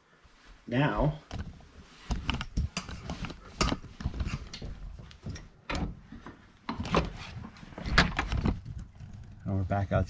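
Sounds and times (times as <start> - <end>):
knocks and clicks of handling: 1.3 - 9.4.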